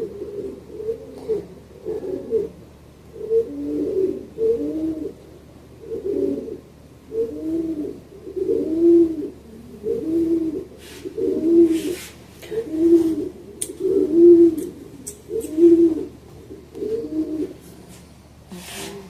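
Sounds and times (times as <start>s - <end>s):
pigeon cooing: 0.0s - 17.9s.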